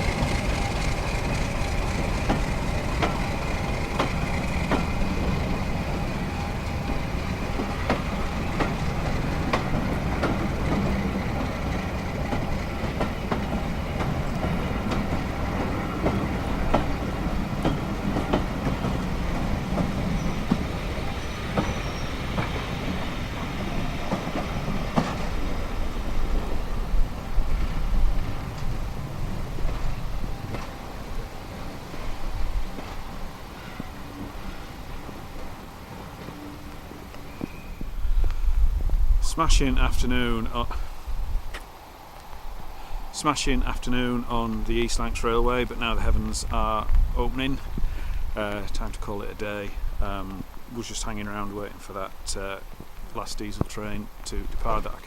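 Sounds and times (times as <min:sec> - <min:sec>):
train wheels clicking over rail joints: 0:00.0 - 0:40.9.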